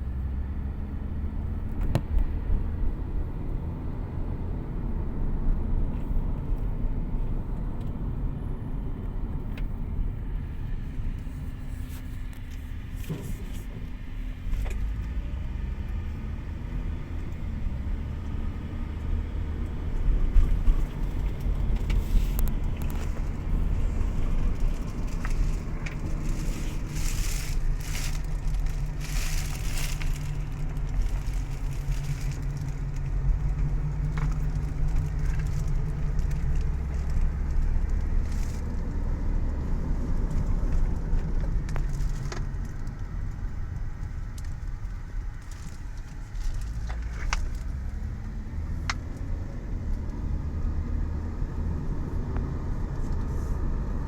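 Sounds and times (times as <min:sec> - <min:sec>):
car engine: 0:00.0 - 0:54.0
road rumble: 0:00.0 - 0:54.0.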